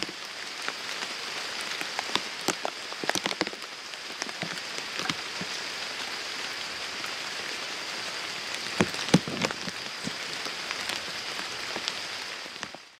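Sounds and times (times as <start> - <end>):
rain on pond and grass: 0.0 - 13.0.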